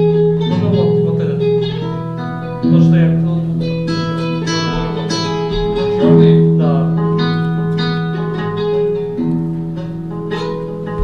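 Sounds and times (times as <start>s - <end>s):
plucked guitar-like music: 0.0s - 11.0s.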